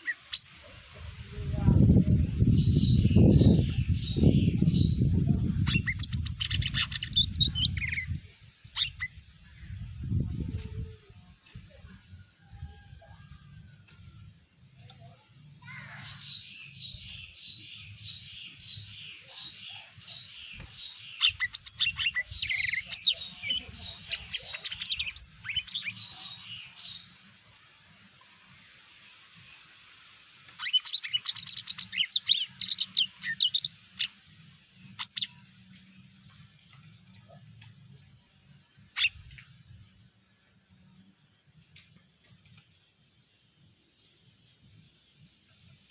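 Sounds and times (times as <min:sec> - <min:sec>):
sharp bird calls: 0:05.6 - 0:09.2, 0:15.6 - 0:27.0.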